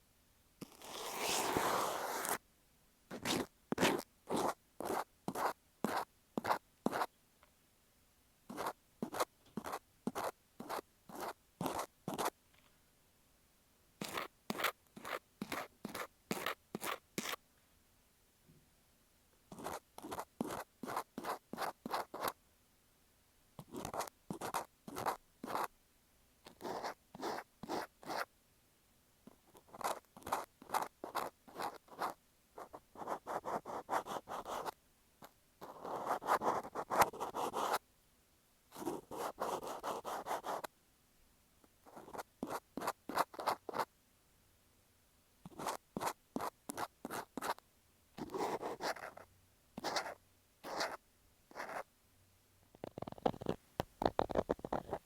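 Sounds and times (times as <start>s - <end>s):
cotton swab rubbing on microphone: 0.6s - 2.4s, 3.1s - 7.1s, 8.5s - 12.4s, 14.0s - 17.4s, 23.7s - 25.7s, 29.6s - 34.8s, 41.9s - 43.9s, 49.8s - 51.9s, 52.8s - 55.0s.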